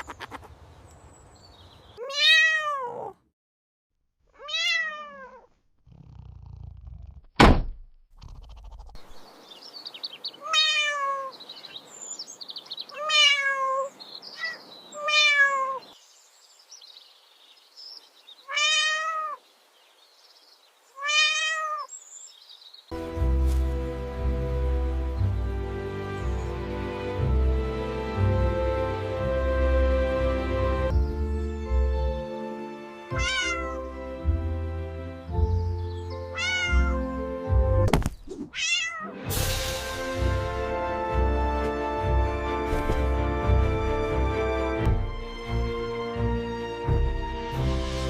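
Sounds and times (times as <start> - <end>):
cat meowing: 2.0 - 3.2, 4.3 - 5.5, 10.4 - 11.3, 12.9 - 15.9, 18.4 - 19.4, 21.0 - 21.9, 33.1 - 33.8, 36.3 - 37.0, 38.5 - 39.2
heavy thump: 7.4 - 7.9.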